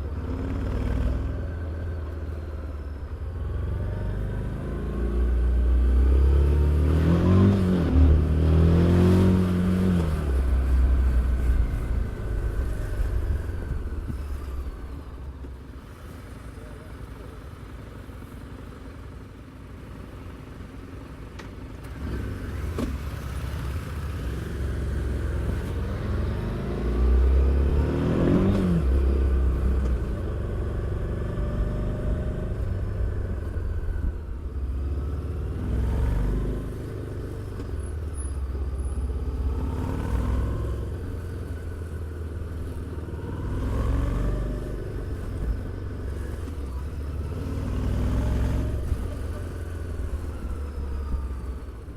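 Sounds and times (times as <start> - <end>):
motorcycle engine revving: 21.9 - 51.9.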